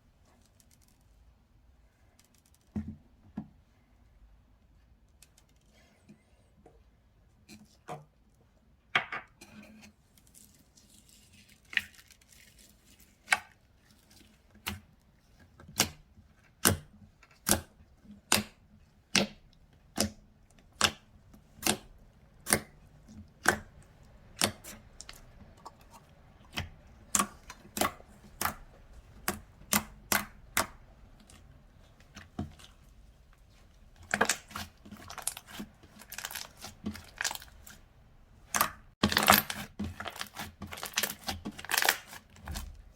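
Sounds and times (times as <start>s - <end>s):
slime popping and crackling: 34.1s - 37.8s, 38.5s - 42.6s.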